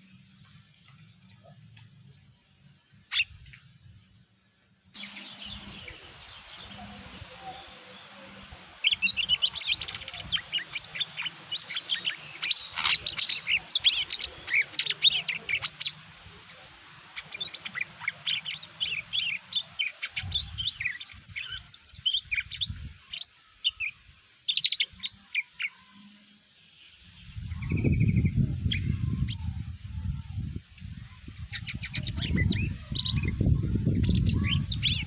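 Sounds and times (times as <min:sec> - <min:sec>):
bird singing chirps and whistles: 0:31.5 - 0:35.0.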